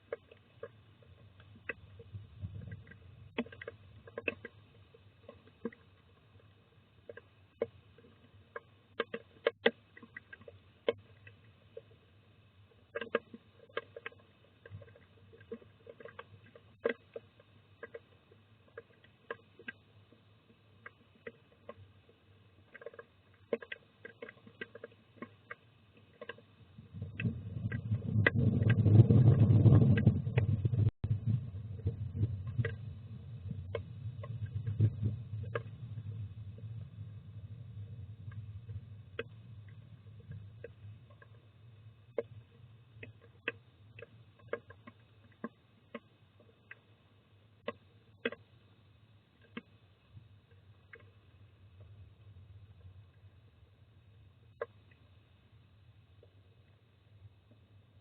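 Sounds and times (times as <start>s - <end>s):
thunder rumbling: 26.9s - 33.7s.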